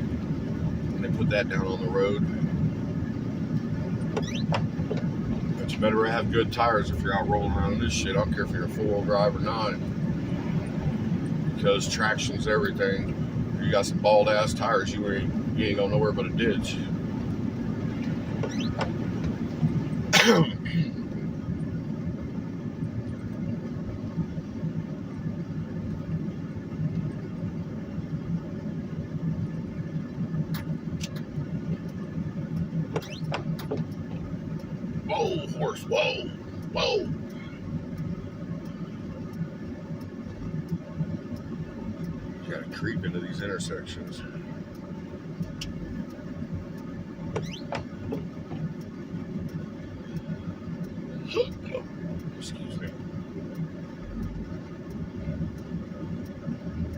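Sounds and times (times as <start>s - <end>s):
tyre and road rumble: 0.0s - 24.4s, 29.5s - 38.4s, 47.0s - 53.5s
car engine running: 0.0s - 56.9s
short rising squeak: 4.1s - 4.6s, 18.4s - 18.9s, 33.0s - 33.4s, 47.4s - 47.8s.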